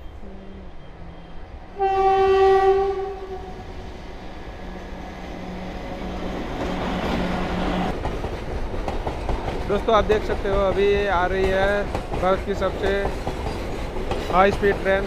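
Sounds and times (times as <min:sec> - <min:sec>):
oncoming train rumble: 0:00.0 - 0:15.0
train horn blast: 0:00.2 - 0:03.7.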